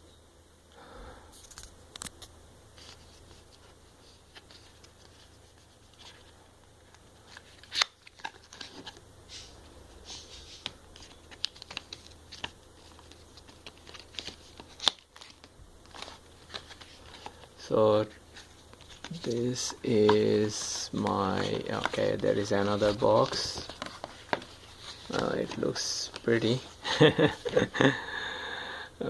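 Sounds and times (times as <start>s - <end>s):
cardboard packaging being handled: 10.1s - 27.8s.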